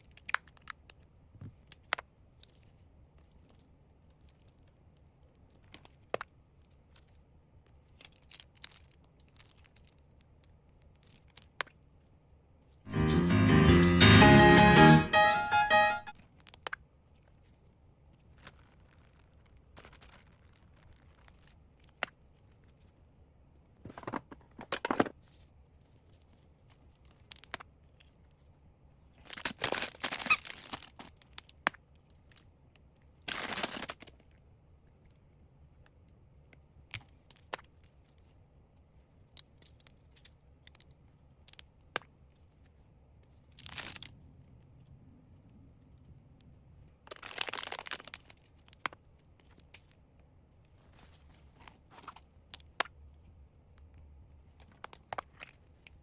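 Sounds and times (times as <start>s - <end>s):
packaging rustling and crinkling: 18.2s - 21.5s, 47.1s - 48.8s
packaging tearing or crumpling: 18.3s - 21.5s, 29.3s - 31.3s, 33.3s - 34.1s, 43.6s - 44.1s, 47.1s - 48.8s.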